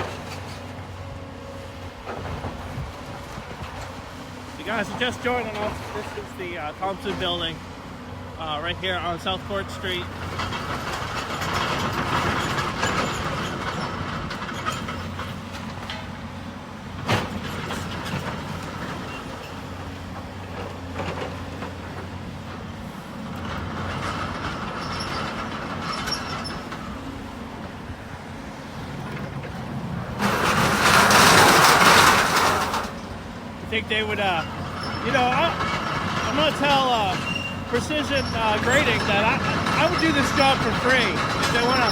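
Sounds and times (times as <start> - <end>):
heavy machine engine running: 0.0 - 41.9
rubble clattering and scraping: 28.9 - 41.9.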